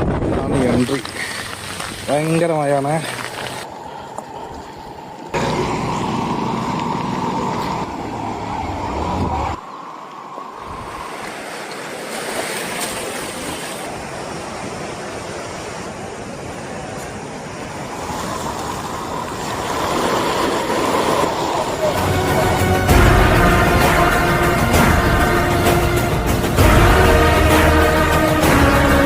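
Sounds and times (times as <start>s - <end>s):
waterfall rushing: 17.5s - 29.0s.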